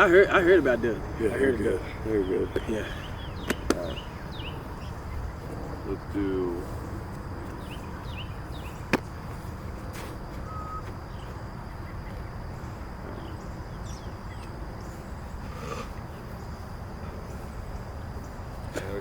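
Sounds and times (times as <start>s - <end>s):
low rumble of wind or traffic: 0.0s - 19.0s
thin insect-like whine: 0.0s - 19.0s
faint bird chirps: 1.8s - 5.8s, 6.4s - 9.7s, 10.4s - 19.0s
sharp smack: 8.9s - 9.1s.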